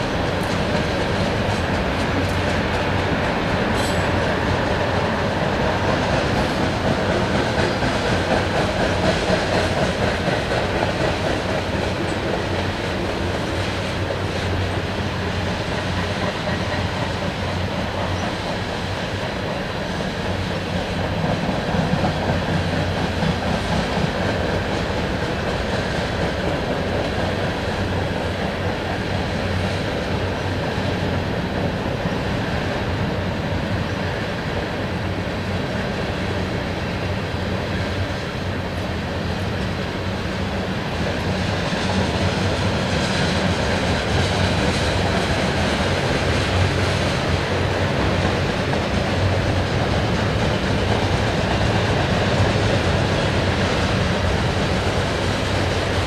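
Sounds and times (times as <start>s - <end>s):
wheels clicking over rail joints: 0.0s - 32.7s
freight train rumbling past: 0.0s - 56.0s.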